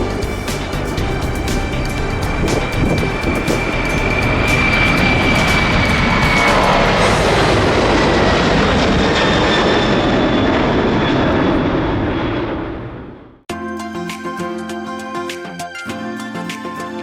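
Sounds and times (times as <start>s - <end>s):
music: 0.0s - 9.4s, 13.5s - 17.0s
airplane engine noise: 0.0s - 13.4s.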